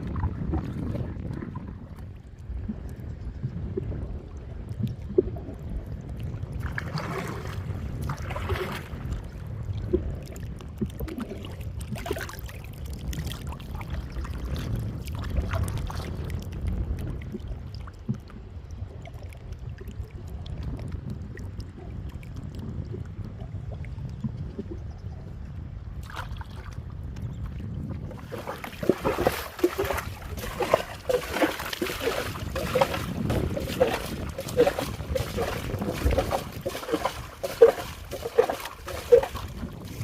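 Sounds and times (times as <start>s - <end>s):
water sloshing and splashing: 0.0s - 2.9s, 4.7s - 22.6s, 26.0s - 40.0s
steady low rumble: 26.6s - 40.0s.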